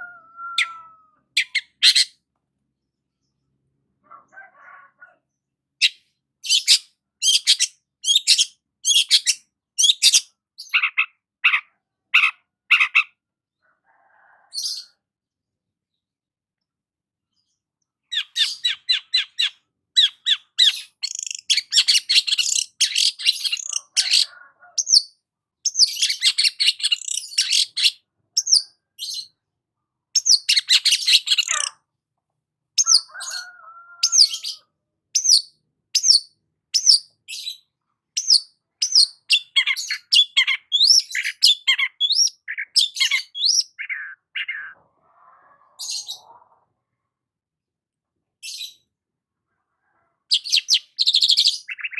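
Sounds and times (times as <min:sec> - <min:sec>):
bird singing sharp chattering notes: 0:18.2 - 0:24.0.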